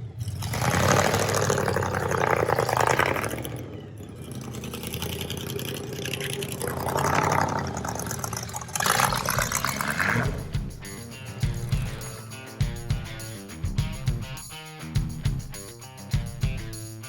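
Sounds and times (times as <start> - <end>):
rushes of noise: 0.0 - 10.6
car engine idling: 0.0 - 13.1.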